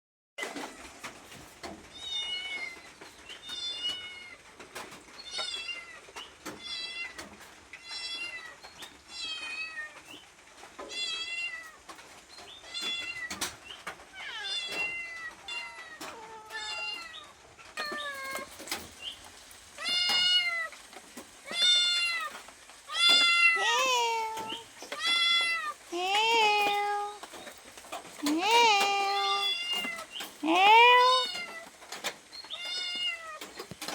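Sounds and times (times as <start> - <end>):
cat meowing: 14.2 - 18.8, 19.8 - 20.8, 21.4 - 27.3, 28.2 - 31.8, 32.5 - 33.5.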